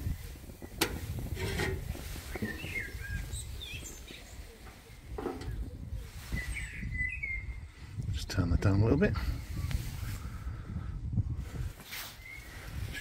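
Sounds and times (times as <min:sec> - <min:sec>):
small birds chirping: 0:00.0 - 0:10.6, 0:11.4 - 0:13.0.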